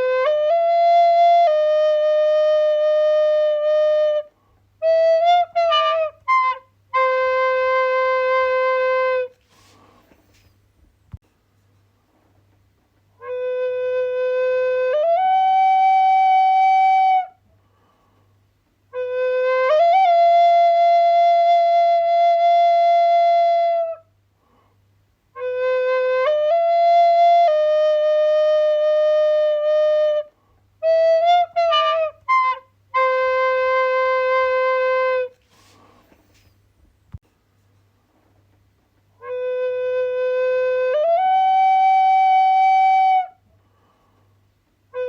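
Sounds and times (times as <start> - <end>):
solo flute playing: 0.0 - 10.0, 13.2 - 17.4, 18.9 - 24.1, 25.4 - 36.5, 39.2 - 43.4.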